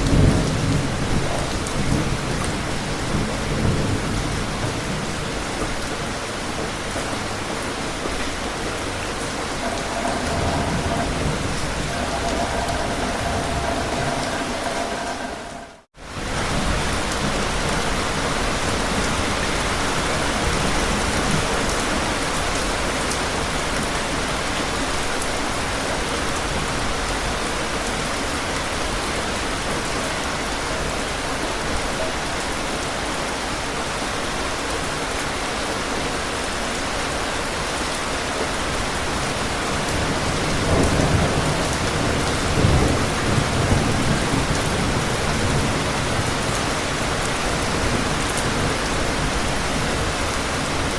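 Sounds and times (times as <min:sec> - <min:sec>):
heavy rain falling: 0:00.0 - 0:50.9
low rolls of thunder: 0:08.3 - 0:18.0.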